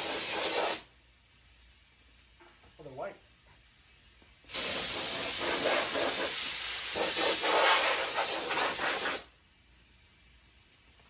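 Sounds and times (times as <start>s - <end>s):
air blow gun hissing: 0.0s - 0.9s, 4.5s - 9.3s.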